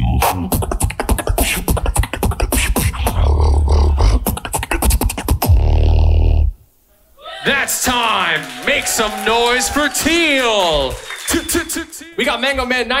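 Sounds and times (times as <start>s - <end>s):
beatboxing: 0.0s - 6.6s
deep bass vocal tones: 0.0s - 6.6s.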